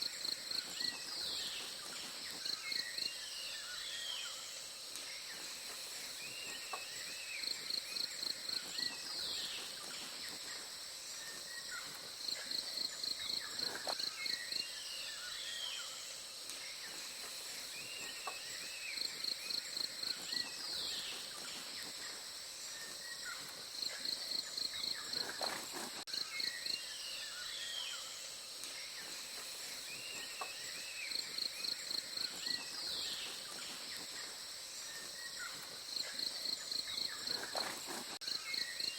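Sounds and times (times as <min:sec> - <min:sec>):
insect drone: 0:00.0 - 0:38.9.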